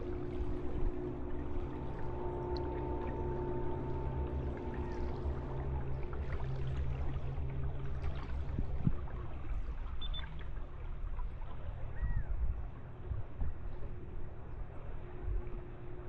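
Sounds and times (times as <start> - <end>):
river water gurgling: 0.0 - 10.8
steady low hum: 0.0 - 16.0
wind rumble on microphone: 0.0 - 16.0.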